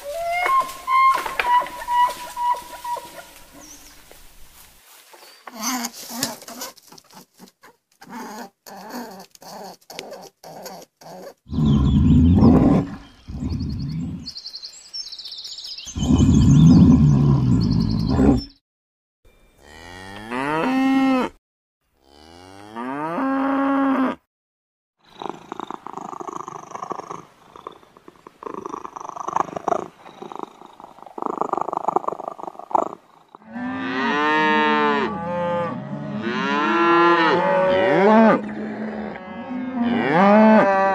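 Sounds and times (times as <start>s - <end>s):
cattle mooing: 19.6s - 21.4s, 33.4s - 40.9s.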